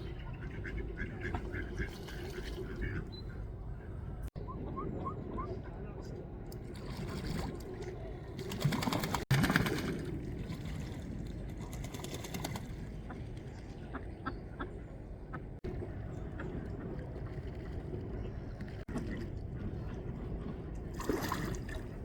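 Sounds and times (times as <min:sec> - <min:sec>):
ducks splashing in water: 0:00.4 - 0:03.1, 0:06.7 - 0:13.2, 0:20.9 - 0:22.0.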